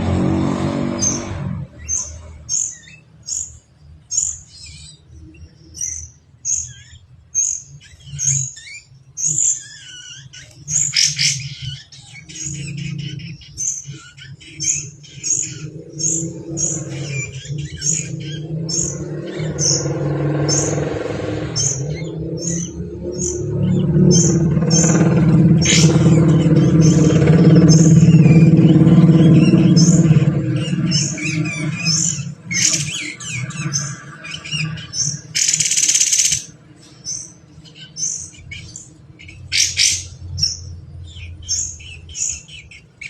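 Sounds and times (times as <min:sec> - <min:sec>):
bird chirping: 0:00.0 - 0:43.0
low engine-like rumble: 0:00.0 - 0:43.0.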